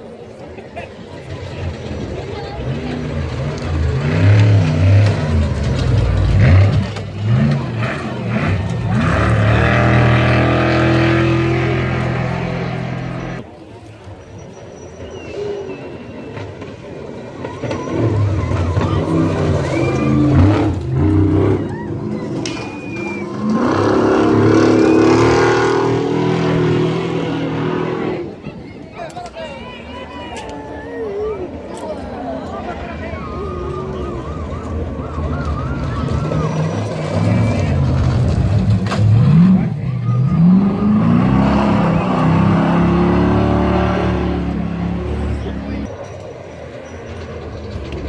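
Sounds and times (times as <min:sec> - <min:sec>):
race truck engine revving: 0:01.3 - 0:13.4, 0:17.4 - 0:28.4, 0:32.5 - 0:46.1.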